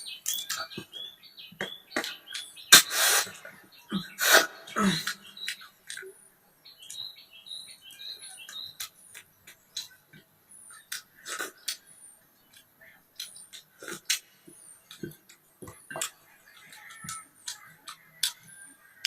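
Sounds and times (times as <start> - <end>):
high short chirps: 1.7 - 5.7
clicking mouth sounds: 2.0 - 6.2, 10.8 - 11.9, 12.5 - 18.5
hissing slurps: 2.7 - 6.0, 11.2 - 11.8.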